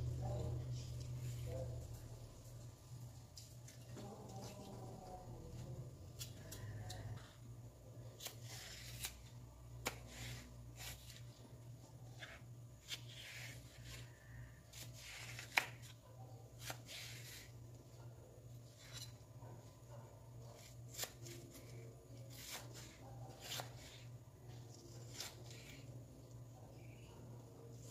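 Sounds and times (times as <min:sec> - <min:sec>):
knife scraping and slicing: 0:08.2 - 0:11.3, 0:14.7 - 0:16.0, 0:16.6 - 0:17.5, 0:18.6 - 0:19.3, 0:20.5 - 0:25.9.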